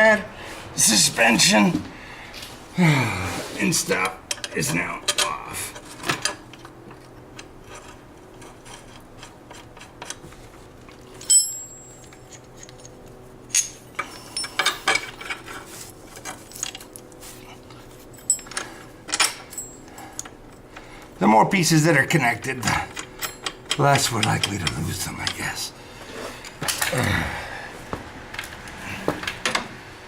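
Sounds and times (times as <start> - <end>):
metal parts clinking and clattering: 10.9 - 17.1, 17.7 - 20.6, 22.6 - 25.5.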